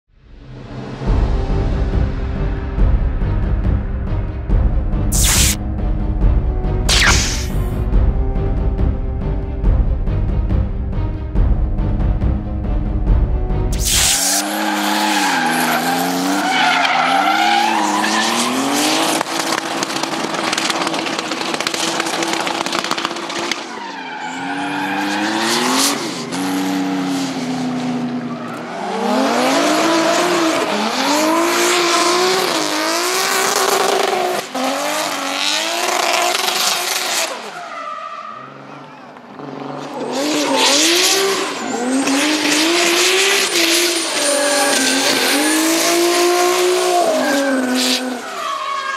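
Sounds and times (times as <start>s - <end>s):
car engine revving hard: 39.4s - 48.2s.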